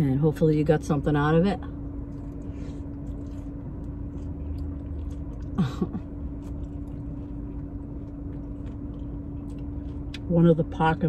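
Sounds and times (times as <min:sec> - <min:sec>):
low hum: 0:00.0 - 0:11.0
person chewing salad: 0:02.0 - 0:10.3.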